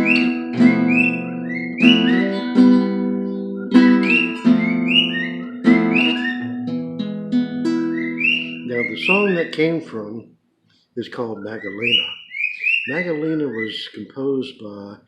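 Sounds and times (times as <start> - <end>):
bird whistling: 0.0 - 6.6, 7.8 - 9.9, 11.2 - 14.0
acoustic guitar plucked chords: 0.0 - 10.0.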